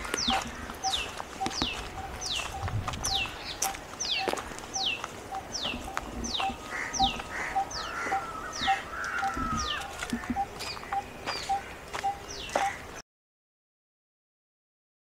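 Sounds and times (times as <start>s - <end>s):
footsteps on dirt path: 0.0s - 13.0s.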